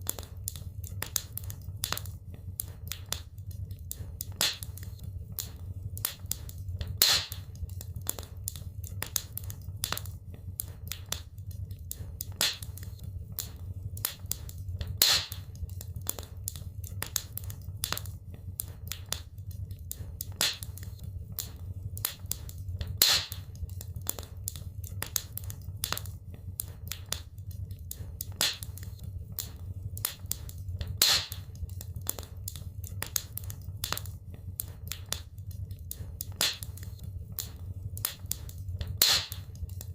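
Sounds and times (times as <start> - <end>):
wood fire crackling: 0.0 - 39.9
loud fire pops: 4.0 - 8.3, 12.0 - 16.3, 20.0 - 24.3, 27.9 - 32.3, 35.9 - 39.6.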